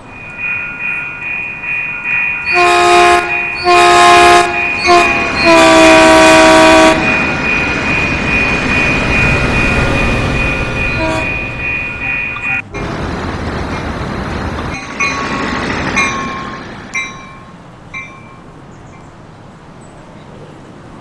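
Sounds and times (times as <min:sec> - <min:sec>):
train rumble passing: 0:00.0 - 0:21.0
high ringing tone: 0:00.1 - 0:12.7
train horn blasts: 0:02.4 - 0:07.3, 0:10.8 - 0:12.6.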